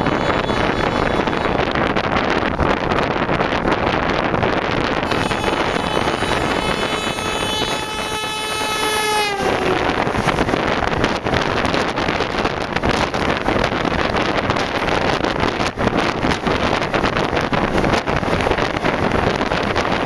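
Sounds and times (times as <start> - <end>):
train horn blast: 0.0 - 2.5, 5.0 - 11.0
wind noise: 0.0 - 20.0.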